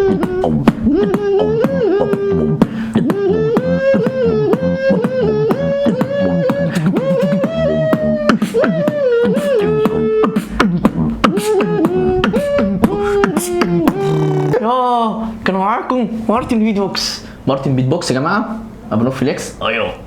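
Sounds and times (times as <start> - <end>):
beatboxing drum sounds: 0.0 - 14.6
hummed melody: 0.0 - 14.6.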